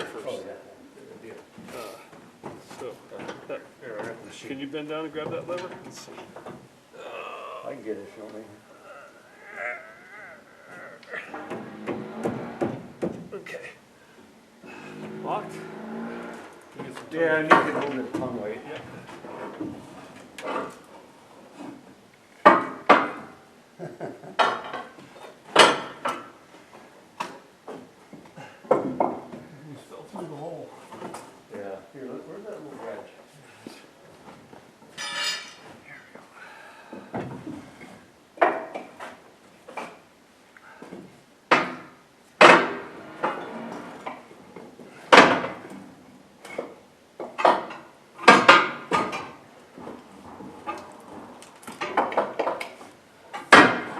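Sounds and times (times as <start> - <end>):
metal clanks and knocks: 11.0 - 13.3, 14.7 - 20.8, 24.3 - 26.3, 41.5 - 45.9, 46.5 - 53.9.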